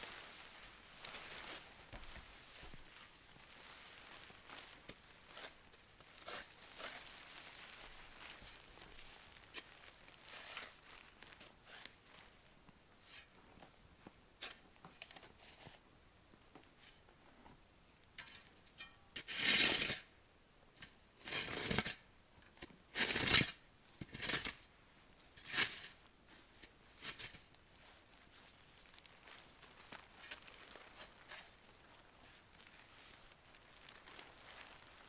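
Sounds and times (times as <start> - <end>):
rustling scraping noises: 0.0 - 15.8, 25.4 - 35.0.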